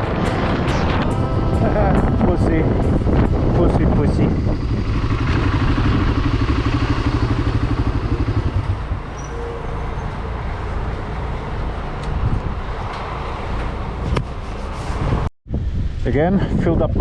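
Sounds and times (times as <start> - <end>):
wind rushing: 0.0 - 9.2, 11.5 - 17.0
motorcycle engine running: 0.0 - 10.0.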